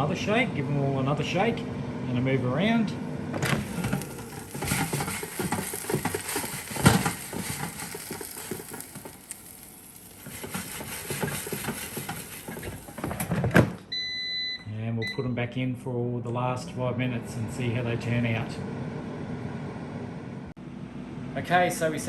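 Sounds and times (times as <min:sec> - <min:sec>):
air fryer basket rattling: 0:03.4 - 0:13.7.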